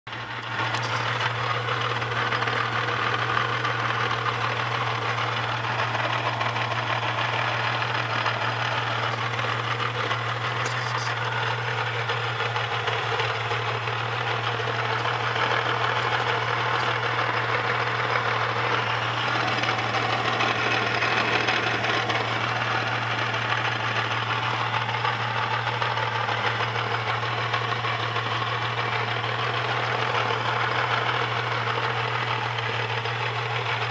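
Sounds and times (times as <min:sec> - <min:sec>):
car engine running: 0:00.1 - 0:33.9
engine rattle: 0:00.1 - 0:33.9.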